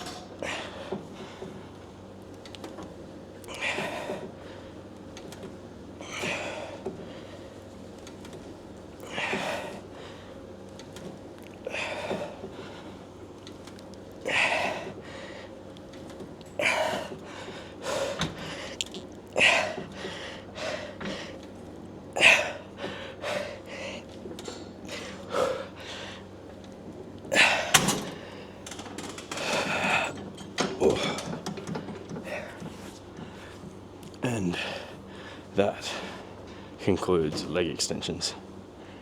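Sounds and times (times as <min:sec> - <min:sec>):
man breathing forcefully: 0:14.2 - 0:15.6, 0:16.6 - 0:18.8, 0:19.4 - 0:21.4, 0:22.2 - 0:24.1, 0:24.8 - 0:26.3, 0:27.3 - 0:28.6, 0:29.3 - 0:30.2, 0:34.6 - 0:36.8.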